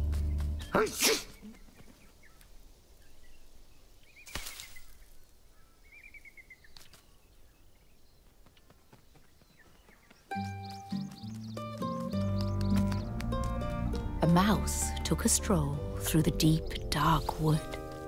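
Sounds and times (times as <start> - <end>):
faint bird chirps and trills: 0.2 - 13.2.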